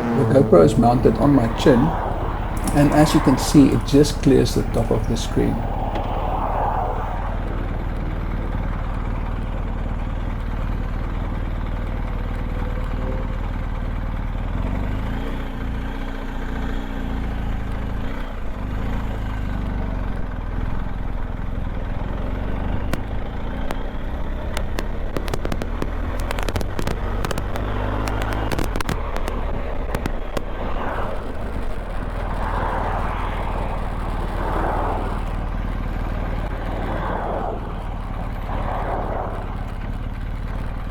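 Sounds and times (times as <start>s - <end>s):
wind rushing over microphone: 0.0s - 11.0s, 24.6s - 40.9s
sharp crackling clicks: 1.4s - 3.3s, 24.5s - 40.9s
motorcycle engine running: 7.2s - 40.9s.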